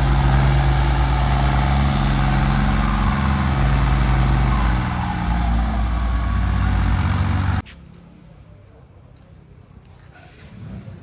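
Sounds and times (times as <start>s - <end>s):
heavy vehicle engine humming: 0.0s - 7.6s.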